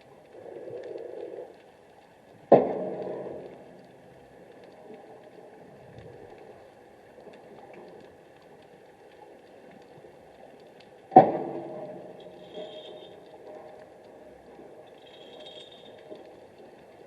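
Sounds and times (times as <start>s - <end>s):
faint underwater hum: 0.0s - 17.0s
loud underwater knock: 11.2s - 11.8s.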